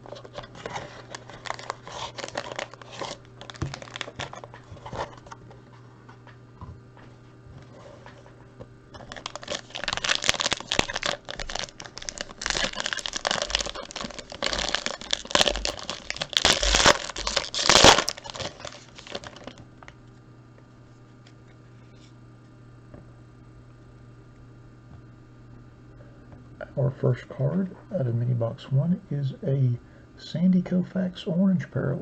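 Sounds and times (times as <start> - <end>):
plastic wrapping crinkling: 0.0 - 6.3, 7.6 - 20.0.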